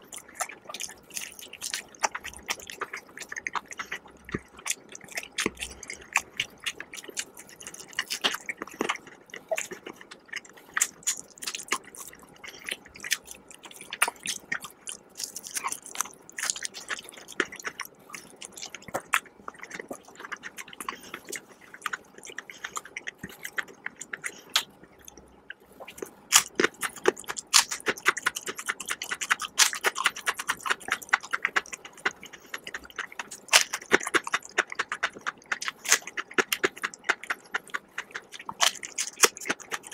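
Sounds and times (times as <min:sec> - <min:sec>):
chewing crispy fried chicken: 0:00.0 - 0:39.9.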